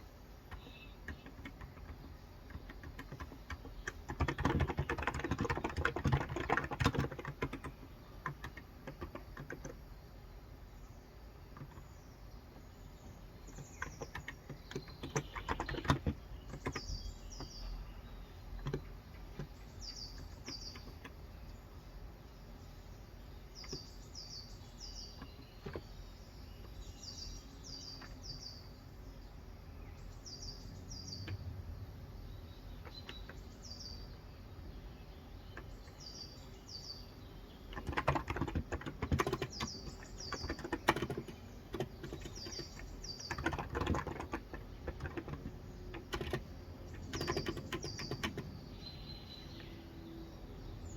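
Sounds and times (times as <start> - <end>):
bird chirping: 0.0 - 50.9
typing on a keyboard: 0.4 - 9.9, 11.5 - 11.9, 13.4 - 21.2, 25.0 - 26.0, 27.9 - 28.4, 31.2 - 31.5, 32.8 - 33.5, 37.7 - 48.7.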